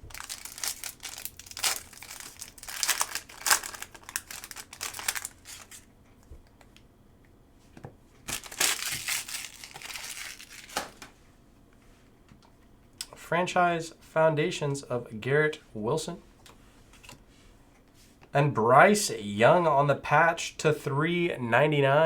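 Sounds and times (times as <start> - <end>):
foil wrapper crinkling and tearing: 0.0 - 5.8, 8.2 - 11.0.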